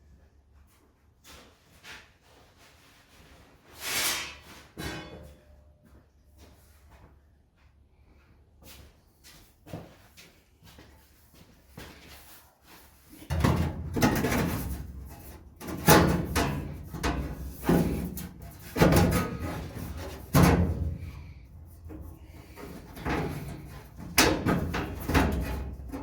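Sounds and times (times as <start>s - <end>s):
sheet metal clunking and rattling: 13.3s - 21.3s, 21.9s - 26.0s.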